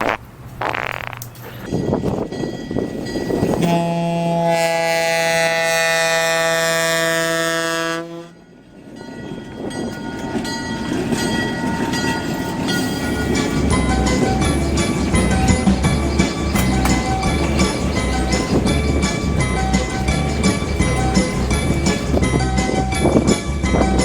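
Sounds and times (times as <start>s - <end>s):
passing train rumbling and clicking: 1.2s - 24.0s
locomotive air horn: 3.6s - 8.4s, 13.0s - 22.3s.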